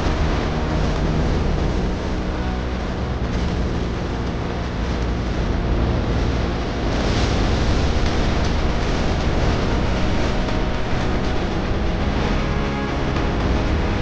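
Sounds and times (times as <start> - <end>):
low hum: 0.0 - 14.0
wind rushing over microphone: 2.9 - 12.5.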